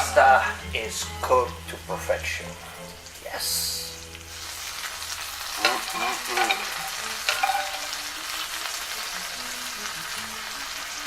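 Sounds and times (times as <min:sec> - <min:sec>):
food sizzling in a frying pan: 0:00.0 - 0:11.0
squeaky pan scrapes: 0:05.6 - 0:08.0.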